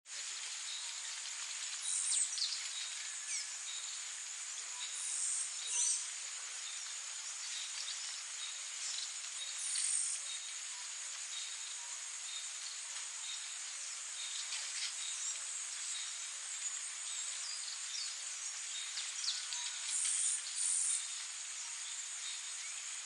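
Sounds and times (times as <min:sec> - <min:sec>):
high insect chorus: 0:00.1 - 0:23.0.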